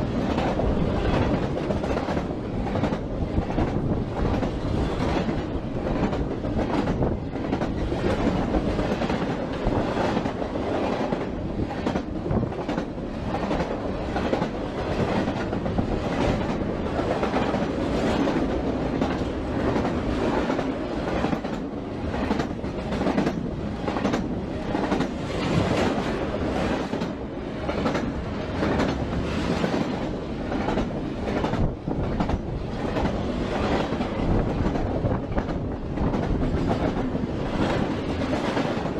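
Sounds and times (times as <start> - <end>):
freight train wagons rumbling: 0.0 - 38.9.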